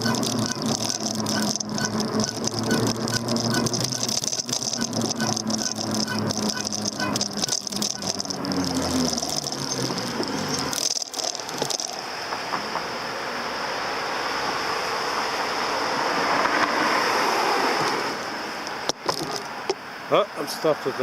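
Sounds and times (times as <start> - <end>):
bike rattling: 0.0 - 12.5, 18.9 - 19.8
high whine: 0.0 - 16.0
road and wind noise: 0.0 - 21.0.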